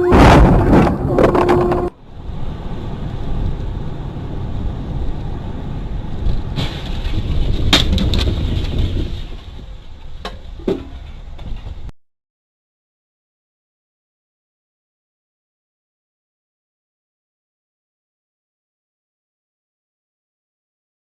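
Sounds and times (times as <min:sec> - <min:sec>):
vehicle and road rumble: 0:00.0 - 0:11.9.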